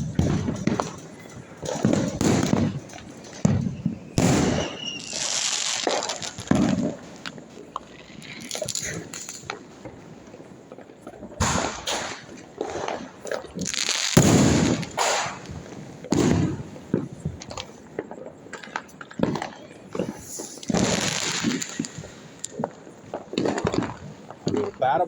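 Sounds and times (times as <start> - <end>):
firecrackers banging and popping: 0.0 - 25.0
fireworks crackling: 0.0 - 25.0.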